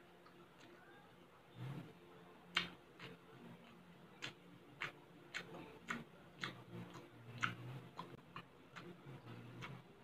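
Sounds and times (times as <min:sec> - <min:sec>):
chewing mussels: 0:02.5 - 0:10.0.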